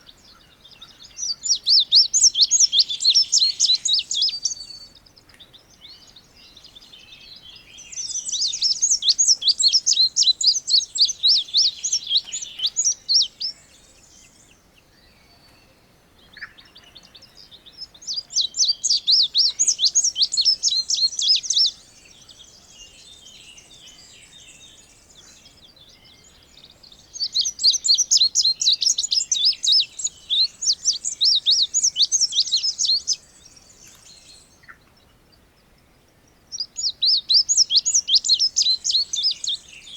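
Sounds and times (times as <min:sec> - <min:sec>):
bird singing high chirping notes: 0:00.0 - 0:05.0, 0:05.8 - 0:14.4, 0:16.5 - 0:22.4, 0:25.9 - 0:34.5, 0:36.5 - 0:39.9.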